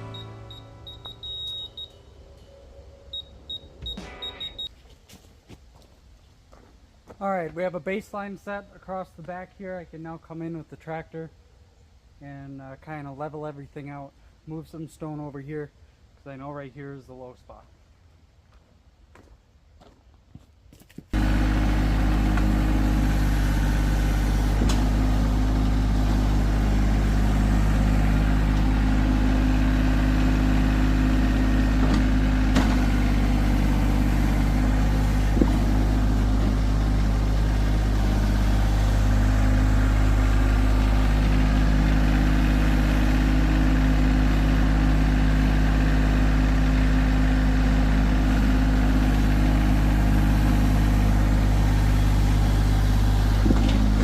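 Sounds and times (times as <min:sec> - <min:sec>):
tractor engine running: 0:00.0 - 0:04.7, 0:21.1 - 0:54.0.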